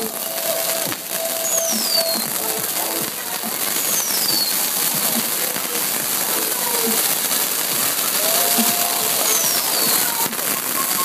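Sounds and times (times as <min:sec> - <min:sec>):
fireworks crackling: 0:00.0 - 0:11.0
falling whistle: 0:00.2 - 0:02.3, 0:03.8 - 0:04.6, 0:08.1 - 0:11.0.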